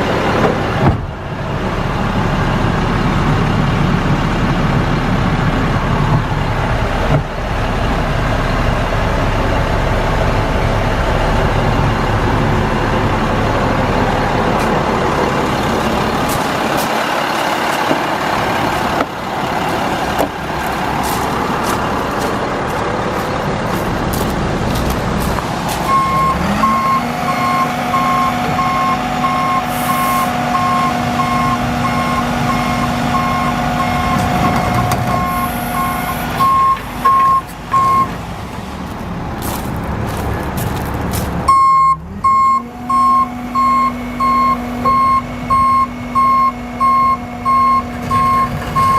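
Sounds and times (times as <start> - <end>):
diesel truck engine running: 0.0 - 48.9.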